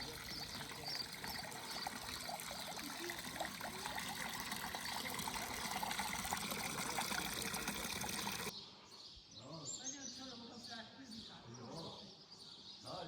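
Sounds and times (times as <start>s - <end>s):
water trickling and splashing: 0.0s - 8.5s.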